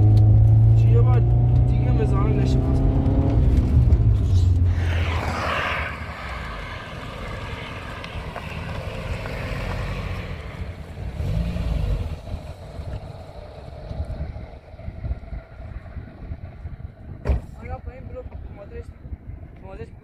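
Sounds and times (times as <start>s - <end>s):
car engine revving: 0.0s - 15.8s
noisy rush: 1.8s - 19.8s.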